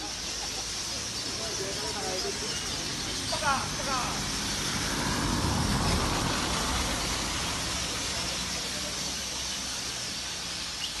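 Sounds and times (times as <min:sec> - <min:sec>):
rain falling on water: 0:03.5 - 0:11.0.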